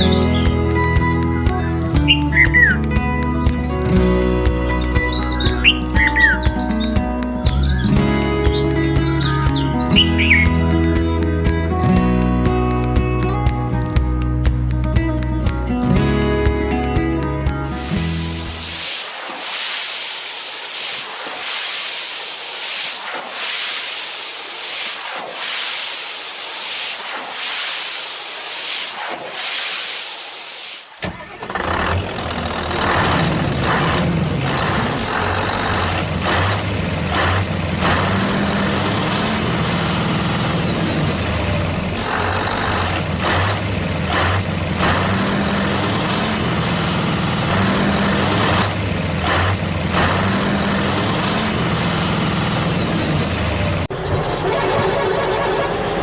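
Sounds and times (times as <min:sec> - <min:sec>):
truck engine droning: 0:00.0 - 0:18.9, 0:31.0 - 0:56.0
pulsing hissing noise: 0:17.7 - 0:31.3.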